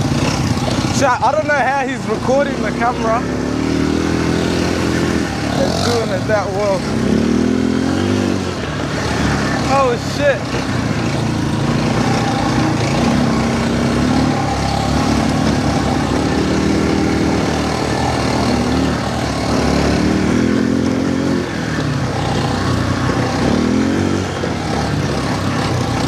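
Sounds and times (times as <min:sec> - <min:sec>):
quad bike engine revving: 0:00.0 - 0:26.0.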